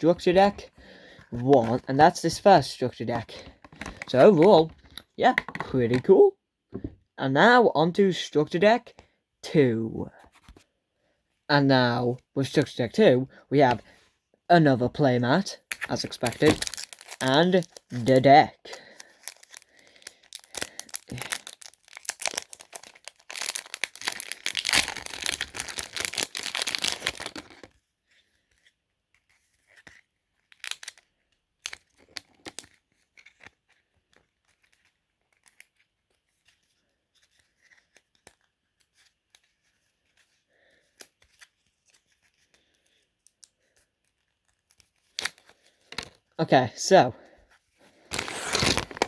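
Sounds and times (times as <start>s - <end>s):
cards and packaging clicking: 15.7s - 18.2s, 19.0s - 27.7s, 48.1s - 49.0s
packaging tearing and crinkling: 15.8s - 18.2s, 19.0s - 27.7s, 30.5s - 31.0s, 48.0s - 49.0s.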